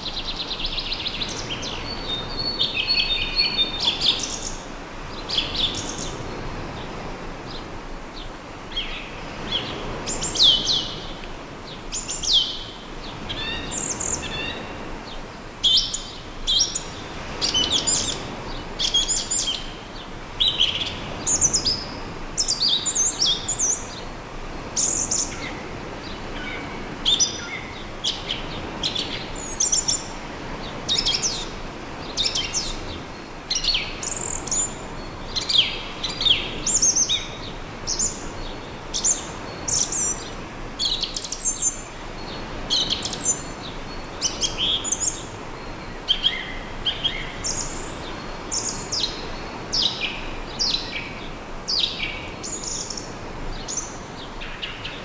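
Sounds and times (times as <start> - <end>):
calm sea on beach: 0.0 - 55.0
birds chirping: 11.7 - 55.0.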